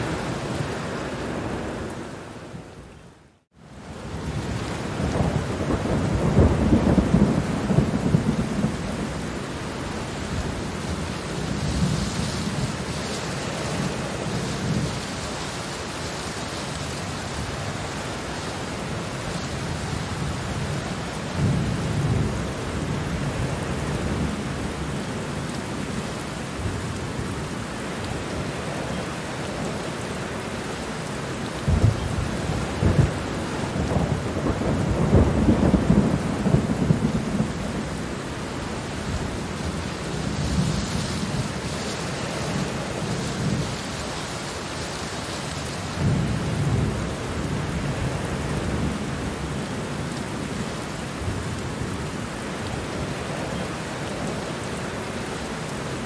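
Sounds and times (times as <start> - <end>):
steady rain falling: 0.0 - 56.0
thunder rumbling: 4.0 - 15.2, 31.6 - 44.5.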